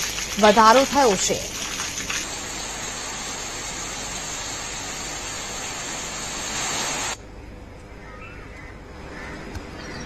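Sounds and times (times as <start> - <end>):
heavy rain pouring: 0.0 - 7.2
runoff streaming off roof: 0.0 - 7.2.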